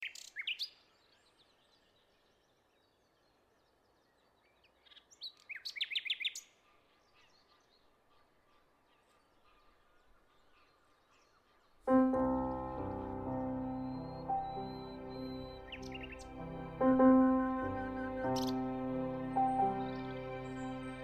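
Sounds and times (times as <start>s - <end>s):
birds chirping: 9.3s - 21.0s
falling whistled bird notes: 12.3s - 21.0s.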